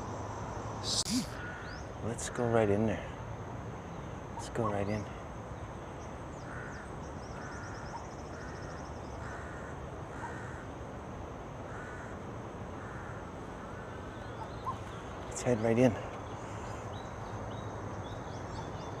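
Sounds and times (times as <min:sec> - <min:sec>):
outdoor hiss: 0:00.0 - 0:04.3
bird cawing: 0:00.8 - 0:01.8, 0:06.4 - 0:10.7, 0:11.7 - 0:12.2, 0:12.8 - 0:14.9.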